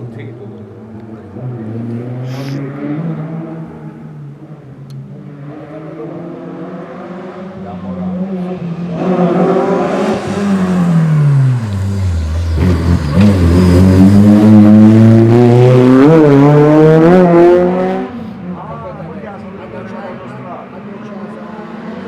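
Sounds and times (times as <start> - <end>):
race car engine revving: 5.3 - 18.3.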